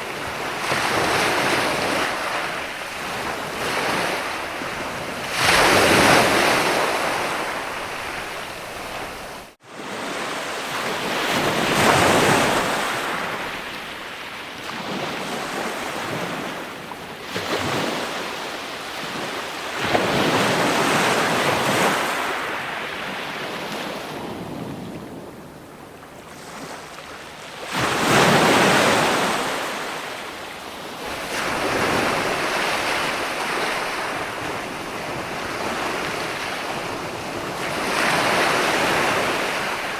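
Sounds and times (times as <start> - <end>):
ocean waves breaking: 0.0 - 18.4, 19.0 - 39.9.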